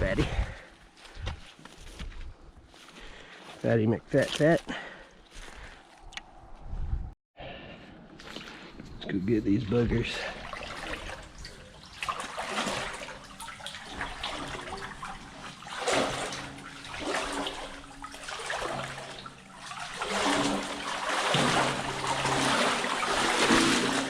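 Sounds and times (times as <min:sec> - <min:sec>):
water sloshing and splashing: 0:08.1 - 0:08.9, 0:09.7 - 0:24.0.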